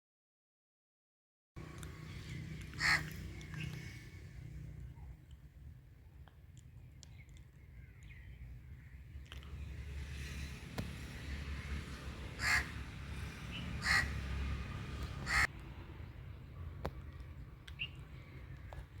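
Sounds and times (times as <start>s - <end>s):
crow cawing: 2.8s - 3.4s, 12.4s - 12.8s, 13.8s - 14.4s, 15.2s - 15.5s.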